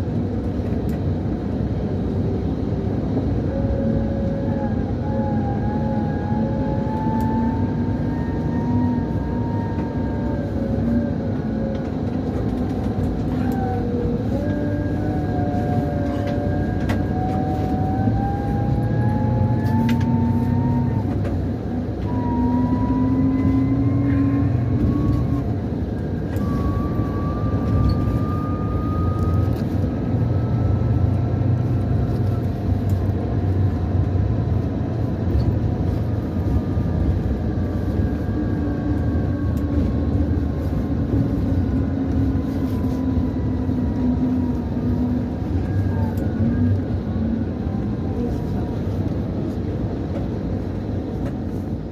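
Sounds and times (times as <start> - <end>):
coach diesel engine rumble: 0.0 - 51.9
gearbox whistle: 22.0 - 25.6, 26.3 - 29.7.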